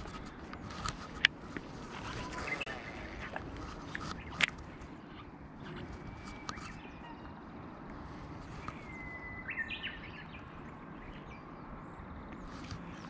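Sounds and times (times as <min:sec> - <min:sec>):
outdoor background noise: 0:00.0 - 0:13.0
small bird whistle and chirps: 0:05.9 - 0:07.4, 0:08.6 - 0:10.5.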